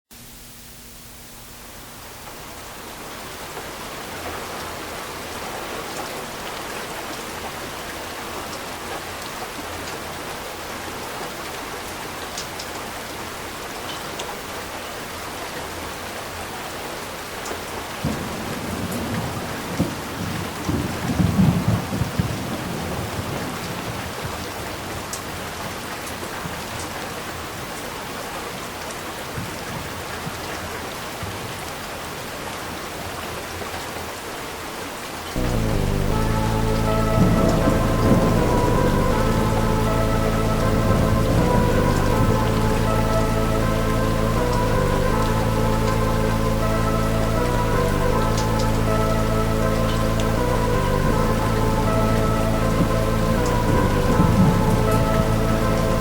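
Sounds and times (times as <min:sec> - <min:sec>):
steady rain: 0:00.1 - 0:56.0
thunder rumbling: 0:18.0 - 0:24.2, 0:35.4 - 0:56.0.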